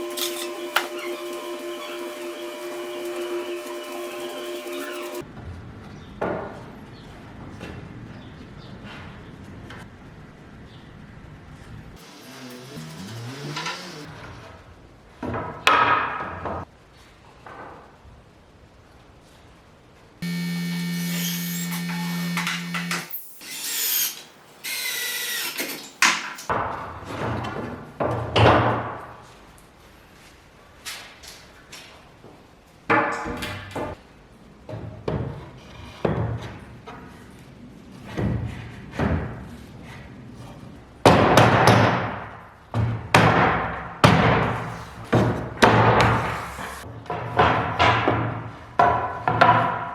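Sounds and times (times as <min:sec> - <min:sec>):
power tool motor running: 0:00.0 - 0:05.2, 0:12.0 - 0:14.1, 0:20.2 - 0:25.9.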